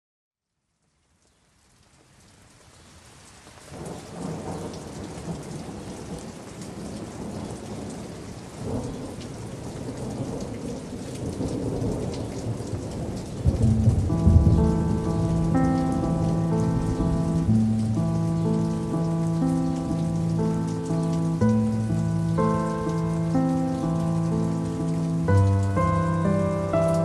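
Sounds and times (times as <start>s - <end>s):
steady rain: 0.5s - 27.0s
thunder rolling: 8.6s - 27.0s
music with sustained tones: 13.5s - 27.0s.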